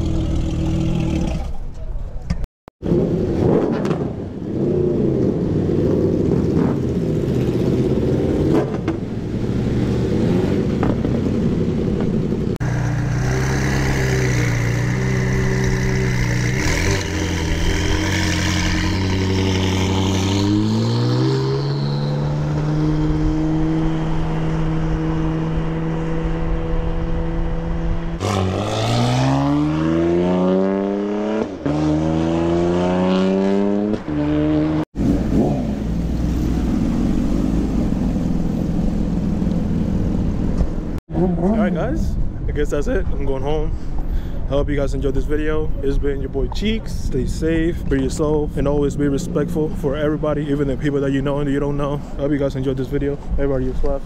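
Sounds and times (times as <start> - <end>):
car engine revving and accelerating: 2.8 - 41.6.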